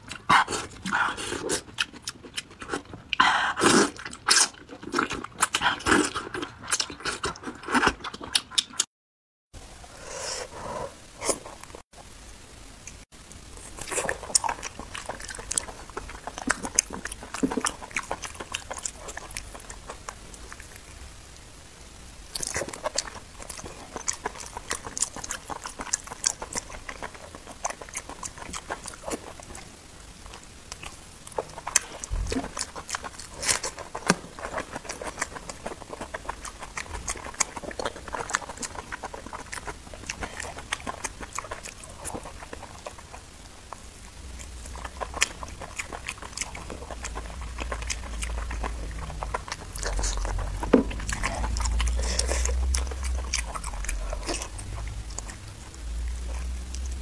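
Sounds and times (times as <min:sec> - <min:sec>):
wet chewing mouth sounds: 0:00.0 - 0:08.9, 0:13.6 - 0:21.0, 0:22.4 - 0:29.7, 0:30.3 - 0:57.0.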